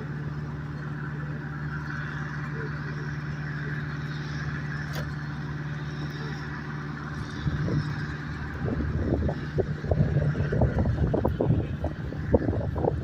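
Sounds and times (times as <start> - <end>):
engine humming: 0.0 - 13.0
wind buffeting microphone: 7.2 - 13.0.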